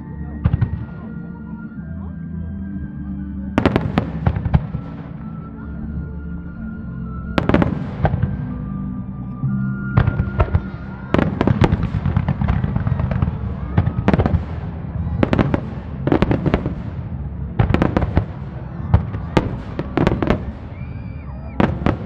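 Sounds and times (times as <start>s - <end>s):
low rumble of launches: 0.0s - 22.0s.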